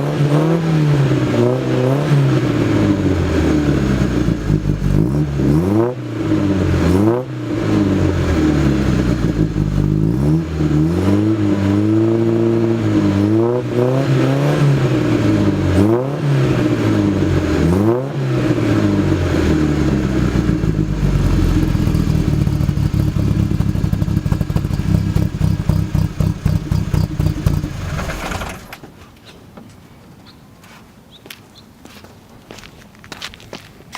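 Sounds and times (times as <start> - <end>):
car engine revving: 0.0 - 28.8
car engine idling: 7.6 - 10.9, 18.4 - 28.8.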